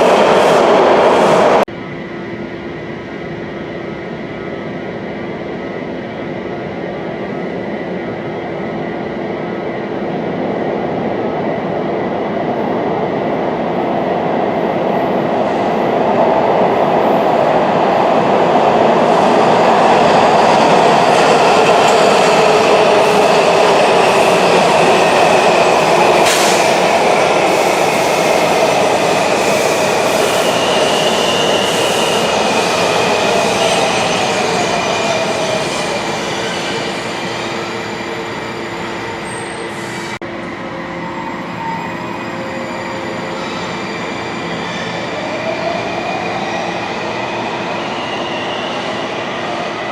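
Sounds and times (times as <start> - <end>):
subway train rolling on rails: 0.0 - 49.9.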